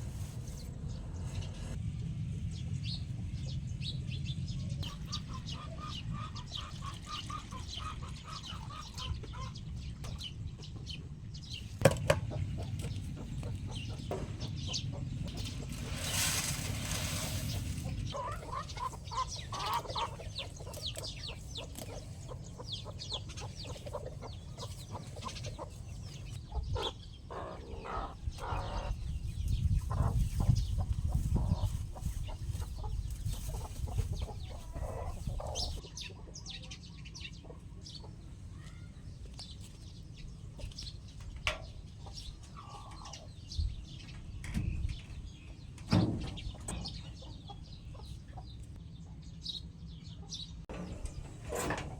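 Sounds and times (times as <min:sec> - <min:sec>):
steady low rumble: 0:00.0 - 0:27.4, 0:28.0 - 0:35.8
chickens clucking: 0:03.2 - 0:51.9.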